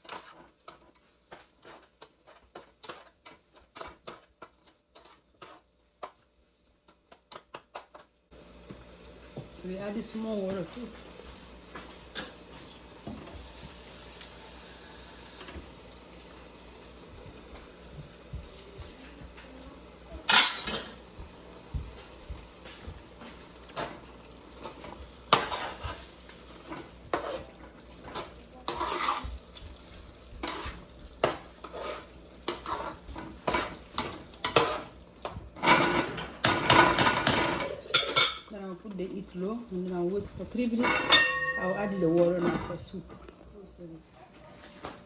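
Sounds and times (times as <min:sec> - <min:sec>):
faint sizzle: 0:00.0 - 0:45.0
metal spoon clinking in a pot: 0:20.3 - 0:21.0, 0:40.8 - 0:42.7.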